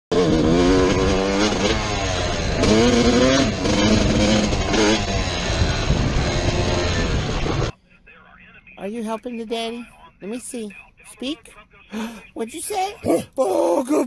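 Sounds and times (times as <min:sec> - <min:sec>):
motorcycle engine revving: 0:00.1 - 0:07.7.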